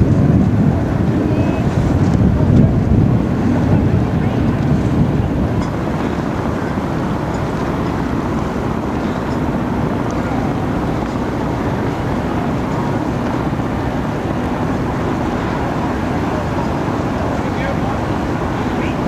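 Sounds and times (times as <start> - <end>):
water rushing: 0.0 - 19.0
wind on microphone: 0.0 - 19.0.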